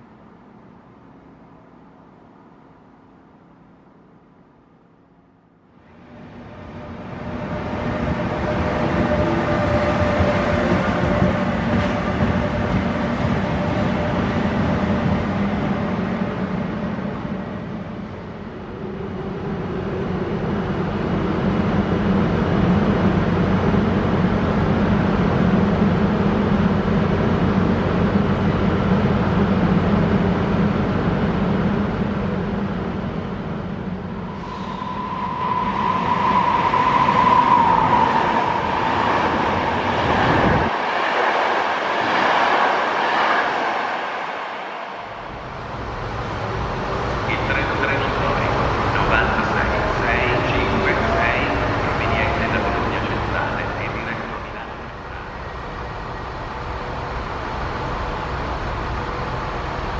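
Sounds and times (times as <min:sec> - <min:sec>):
train rumbling: 0:00.0 - 0:59.9
high metallic squeal: 0:34.2 - 0:39.8.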